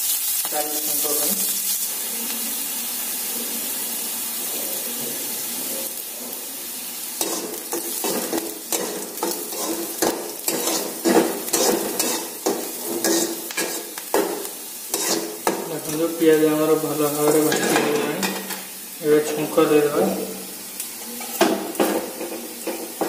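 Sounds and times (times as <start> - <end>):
onions sizzling in hot oil: 0.0 - 23.0
spatula scraping a metal pan: 7.2 - 16.0.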